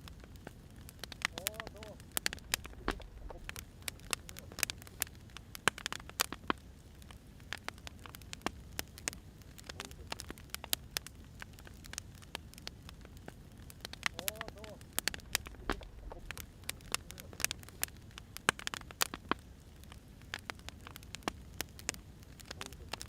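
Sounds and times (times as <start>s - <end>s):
low steady rumble: 0.0s - 5.8s, 6.7s - 18.6s
wood fire crackling: 0.0s - 23.0s.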